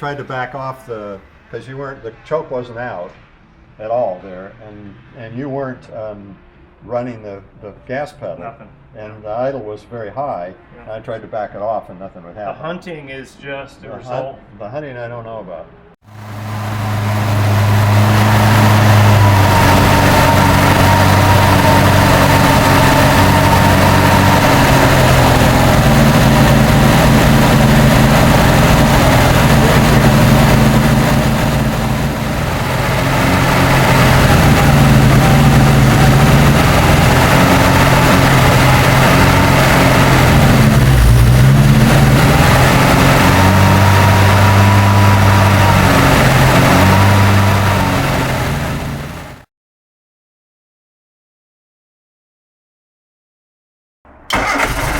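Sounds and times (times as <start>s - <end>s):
car engine idling: 16.1s - 49.4s, 54.3s - 54.9s.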